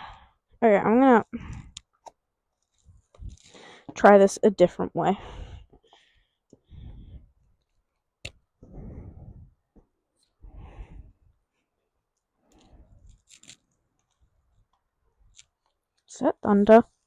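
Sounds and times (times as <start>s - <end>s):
rustling of vest handling: 12.4s - 14.7s.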